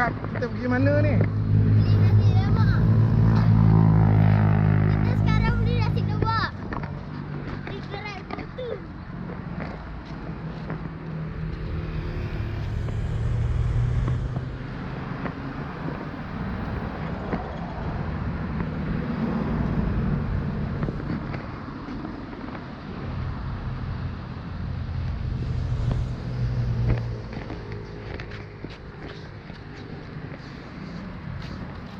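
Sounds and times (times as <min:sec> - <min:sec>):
vehicles passing: 0:00.0 - 0:31.9.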